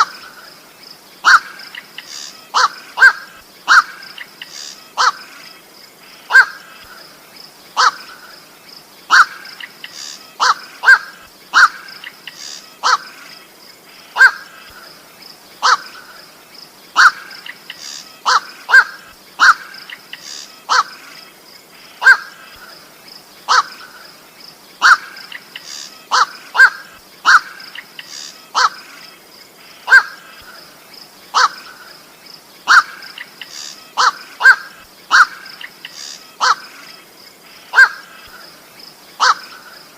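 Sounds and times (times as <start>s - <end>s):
steady high hiss: 0.0s - 39.9s.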